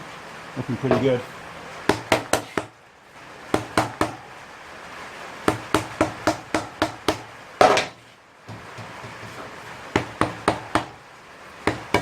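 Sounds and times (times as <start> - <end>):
mallet knocking on metal spindle: 11.7 - 12.0.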